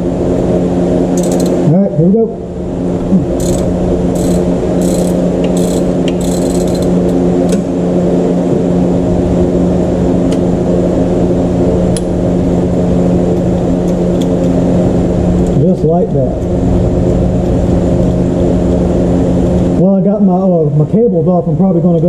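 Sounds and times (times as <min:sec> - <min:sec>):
machine humming: 0:00.0 - 0:22.0
hand tools clicking: 0:01.2 - 0:01.6, 0:03.4 - 0:07.0.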